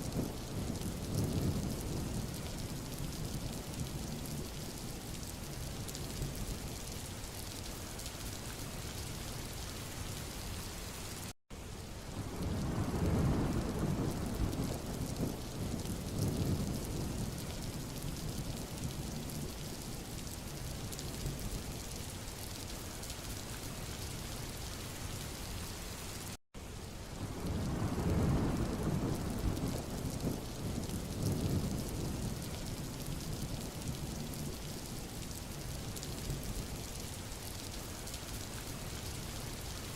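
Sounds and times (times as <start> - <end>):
rain hiss on road: 0.0 - 39.9.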